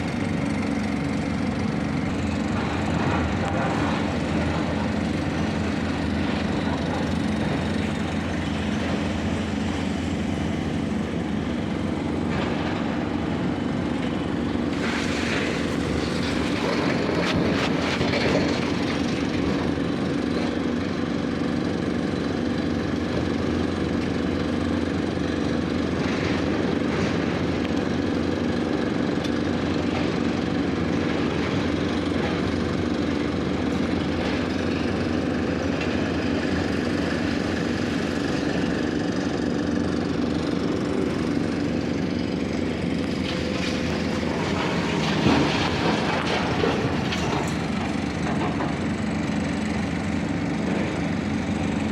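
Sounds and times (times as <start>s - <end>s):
heavy vehicle engine running: 0.0s - 51.9s
clatter: 2.1s - 9.3s, 14.8s - 20.6s, 42.6s - 49.1s.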